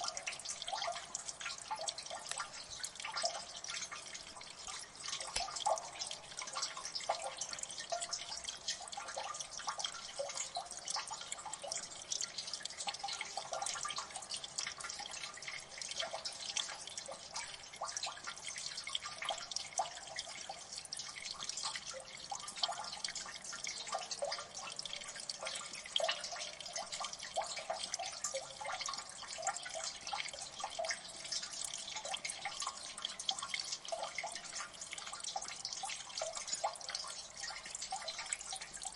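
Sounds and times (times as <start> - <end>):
water dripping onto water and rock: 0.0 - 38.9.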